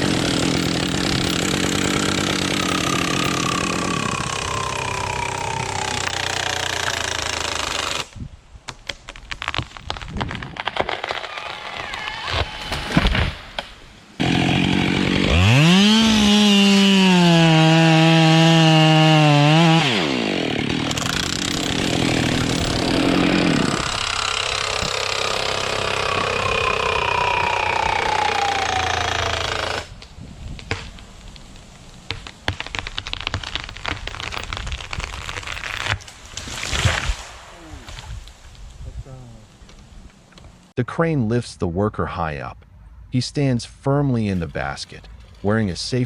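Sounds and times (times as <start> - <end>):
chainsaw revving and cutting: 0.0 - 8.1, 14.2 - 29.9
sharp cracks and crackling: 0.0 - 14.6, 19.3 - 38.6.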